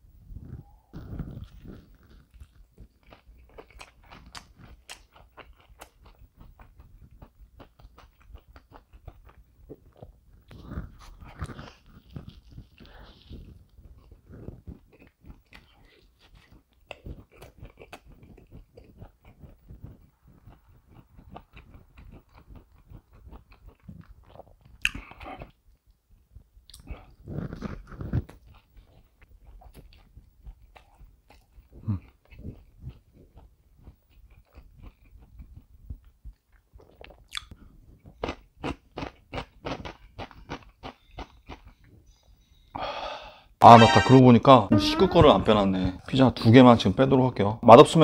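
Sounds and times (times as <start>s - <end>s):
person chewing food: 0.4s - 25.9s, 26.6s - 42.5s
wet mouth clicks: 37.0s - 37.6s.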